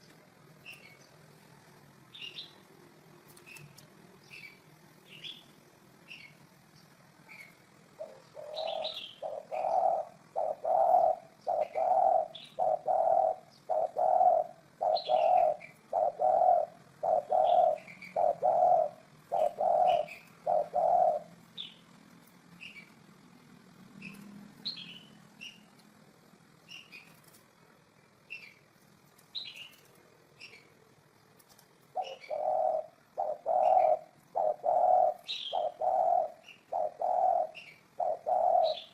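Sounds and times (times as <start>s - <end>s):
small birds chirping: 0.0s - 38.9s
dove cooing: 7.3s - 21.8s, 31.8s - 38.9s.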